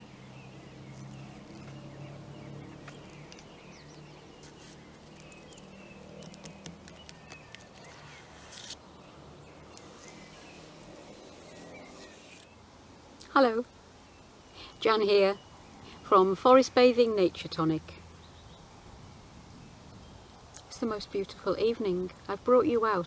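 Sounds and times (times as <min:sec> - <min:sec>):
distant traffic hum: 0:00.0 - 0:23.0
bird chirps: 0:00.2 - 0:12.7.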